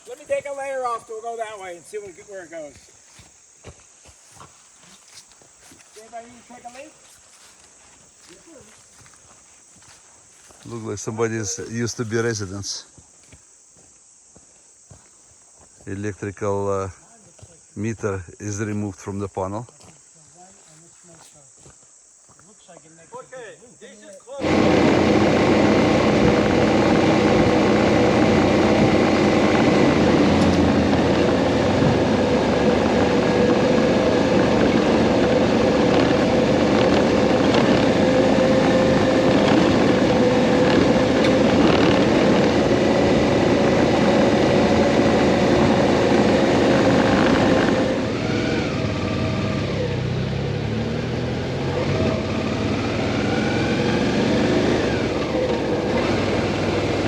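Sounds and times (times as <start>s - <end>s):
motorcycle engine drone: 24.4s - 57.0s.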